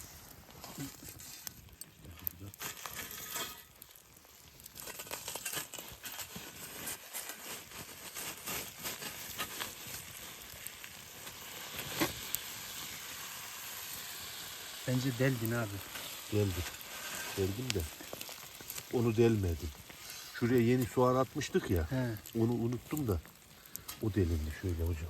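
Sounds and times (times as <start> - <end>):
food sizzling over fire: 0.0 - 25.0
clicks and rustles of handling: 0.4 - 10.7, 15.3 - 25.0.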